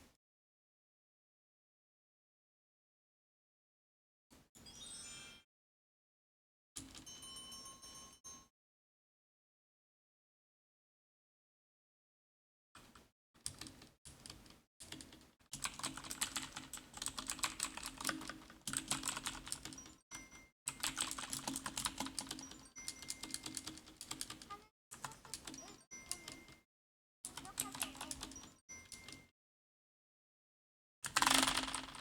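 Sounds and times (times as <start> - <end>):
fast typing on keyboard: 12.8 - 26.6, 27.3 - 29.3, 31.0 - 32.0.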